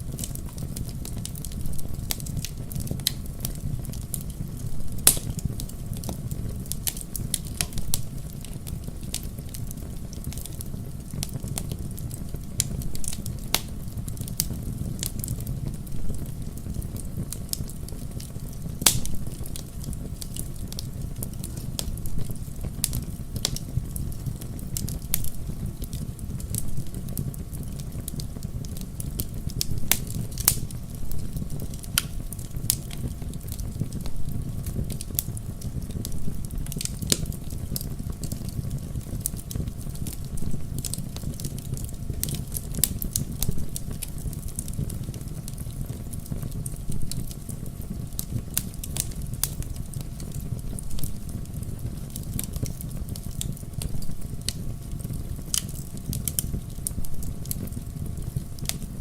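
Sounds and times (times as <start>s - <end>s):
fire flames rumbling: 0.0s - 59.0s
wood snapping and popping: 5.0s - 5.4s, 18.8s - 19.1s, 55.5s - 57.8s.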